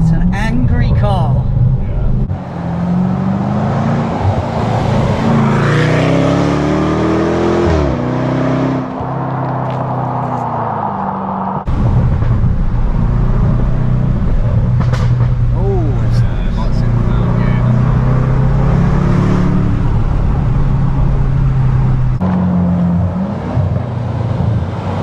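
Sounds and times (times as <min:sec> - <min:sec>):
car engine revving: 0:00.0 - 0:25.0
road noise: 0:00.0 - 0:25.0
low engine drone: 0:09.8 - 0:23.2.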